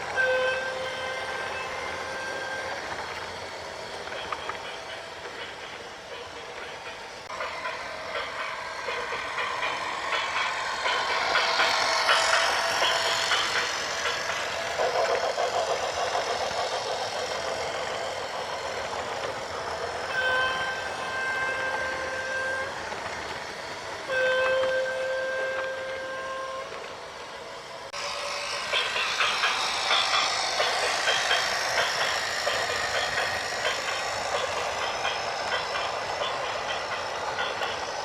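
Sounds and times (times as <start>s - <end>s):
horn blasts: 0.1s - 2.6s, 24.1s - 26.8s.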